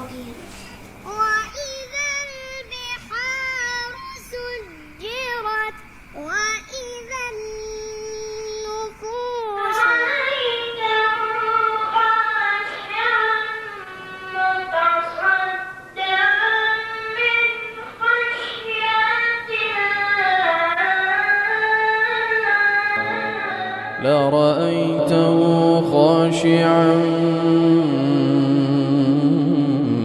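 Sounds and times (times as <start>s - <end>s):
child reciting in melodic chant: 0.0s - 22.3s.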